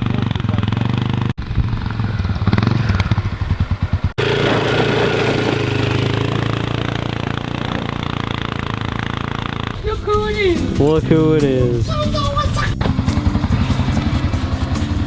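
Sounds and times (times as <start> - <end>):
small engine running: 4.2 - 10.8, 12.2 - 15.0.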